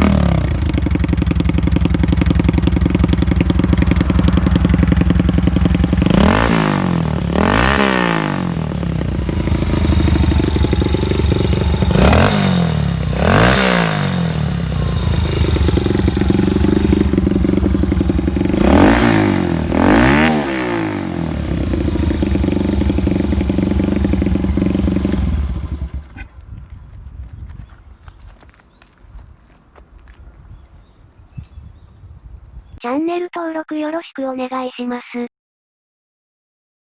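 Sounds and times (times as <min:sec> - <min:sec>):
motorcycle engine idling and revving: 0:00.0 - 0:28.6.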